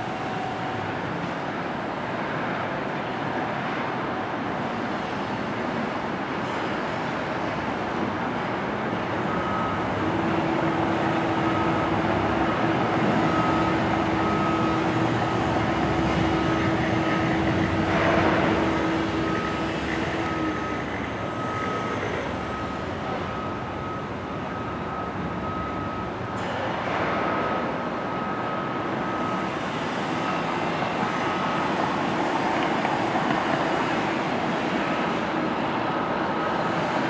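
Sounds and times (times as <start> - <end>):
reversing alarm beeping: 0.0 - 1.3, 9.0 - 37.0
machinery and traffic rumble: 0.0 - 37.0.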